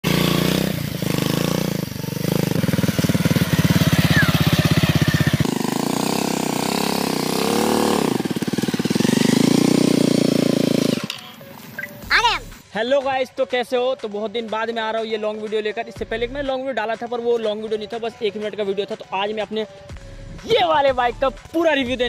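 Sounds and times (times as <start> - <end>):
motorcycle engine running: 0.0 - 12.6.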